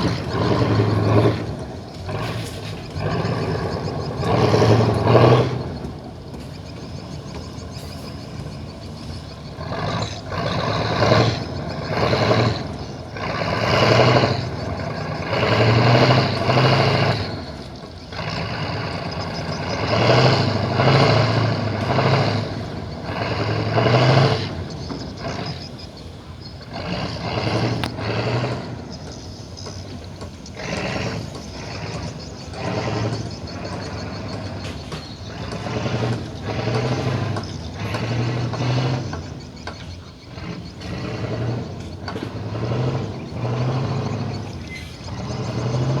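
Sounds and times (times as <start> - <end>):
tugboat diesel engine running: 0.0 - 46.0.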